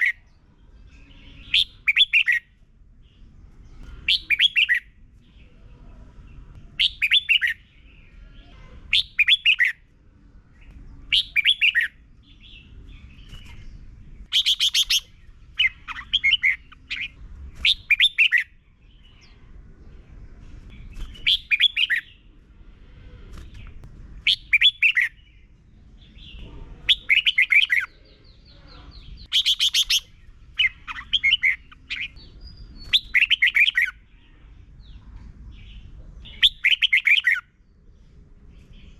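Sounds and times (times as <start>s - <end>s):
faint low rumble: 15.0s - 29.4s.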